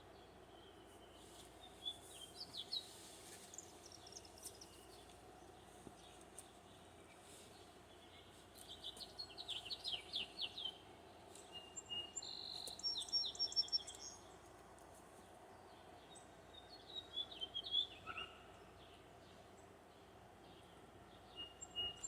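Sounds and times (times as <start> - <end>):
faint background noise: 0.0 - 22.0
songbirds singing: 0.0 - 22.0.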